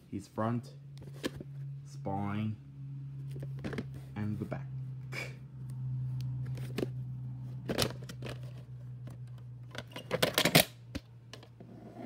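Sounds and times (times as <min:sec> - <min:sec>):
steady low hum: 0:00.0 - 0:12.0
plastic case clicks and rattles: 0:07.6 - 0:11.5.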